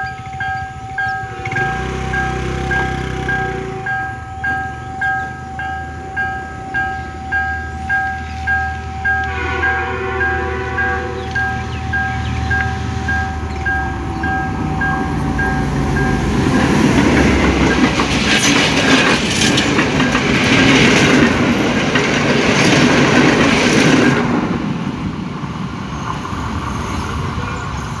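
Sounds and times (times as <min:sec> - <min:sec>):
level crossing warning tone: 0:00.0 - 0:18.1
diesel locomotive engine droning: 0:00.0 - 0:28.0
train wheels clattering over rails: 0:11.2 - 0:27.5.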